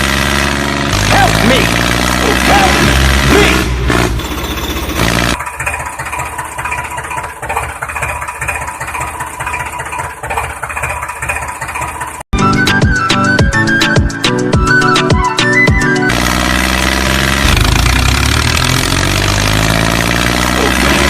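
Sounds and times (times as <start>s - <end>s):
tractor engine idling: 0.9s - 12.6s, 16.1s - 21.0s
music: 12.3s - 16.1s.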